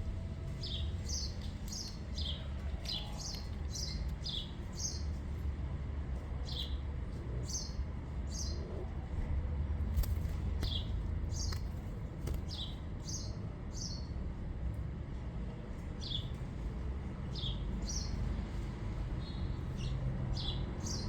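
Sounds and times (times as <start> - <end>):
small bird chirping: 10.6 - 14.0.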